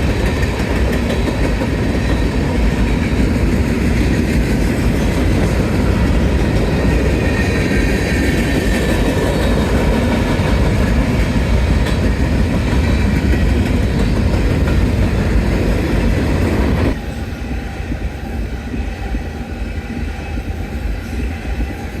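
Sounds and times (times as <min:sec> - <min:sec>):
wheels clickety-clack: 0:00.0 - 0:17.0
freight train wheels rumbling: 0:00.0 - 0:22.0.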